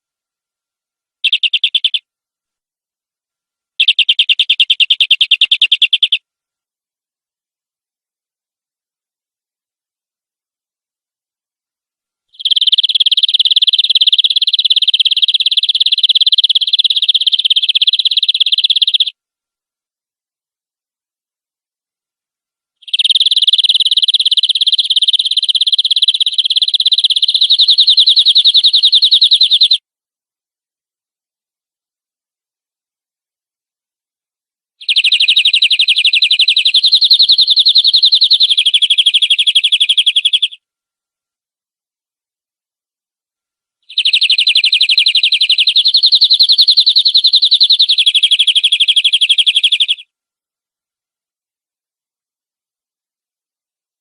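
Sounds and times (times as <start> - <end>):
canary trilling: 1.2 - 2.0, 3.8 - 6.2, 12.4 - 19.1, 22.8 - 29.8, 34.8 - 40.6, 43.9 - 50.0.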